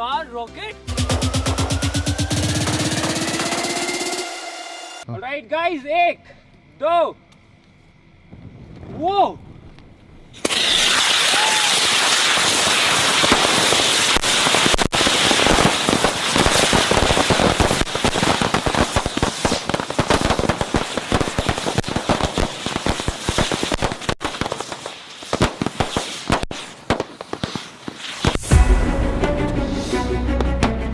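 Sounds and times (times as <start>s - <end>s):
firework rockets hissing: 0.9s - 5.1s, 10.3s - 28.8s
fireworks crackling and banging: 0.9s - 5.1s, 8.2s - 28.7s.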